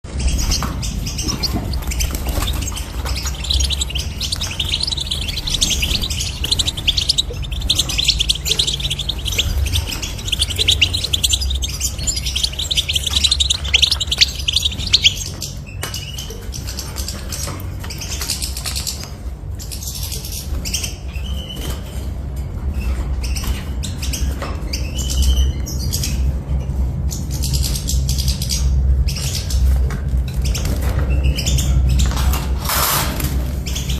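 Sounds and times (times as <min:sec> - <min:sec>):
steady low hum: 0:00.1 - 0:21.0
bird twittering and trilling: 0:00.1 - 0:22.1, 0:22.7 - 0:32.4, 0:33.6 - 0:33.9.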